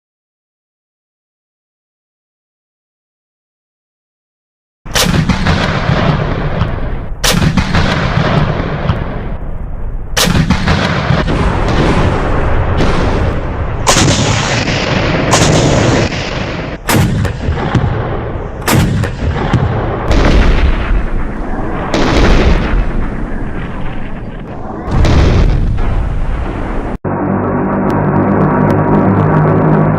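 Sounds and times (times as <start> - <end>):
heavy gunshots: 4.9 - 9.4, 10.2 - 27.0
continuous rumble: 5.2 - 29.9.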